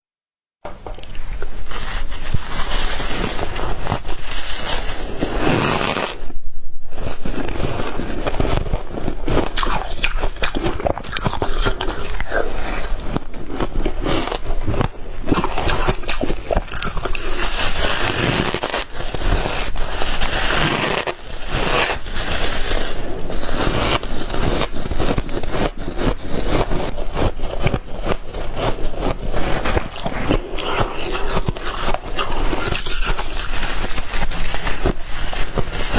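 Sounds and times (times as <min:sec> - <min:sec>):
ice crunching between teeth: 0:07.2 - 0:35.9.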